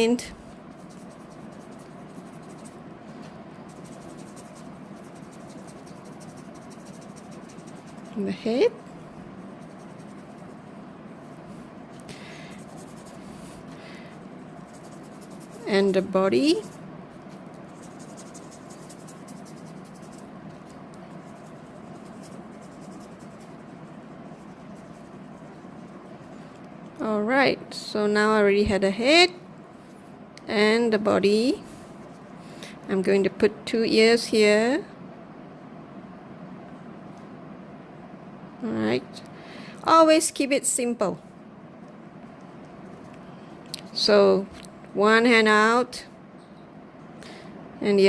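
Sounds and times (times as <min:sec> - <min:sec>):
faint room hiss: 0:00.0 - 0:48.0
paintbrush strokes rustling: 0:00.4 - 0:27.0, 0:31.6 - 0:32.4.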